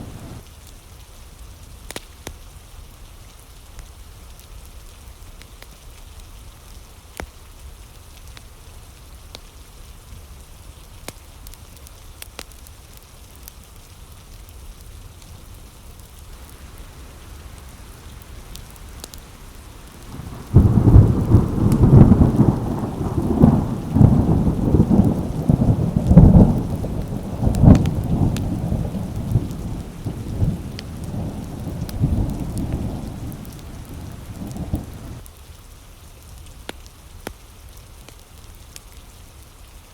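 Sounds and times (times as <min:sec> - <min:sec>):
thunderclap rumbling: 0:00.0 - 0:00.4, 0:16.4 - 0:35.2
steady rain: 0:00.0 - 0:39.9.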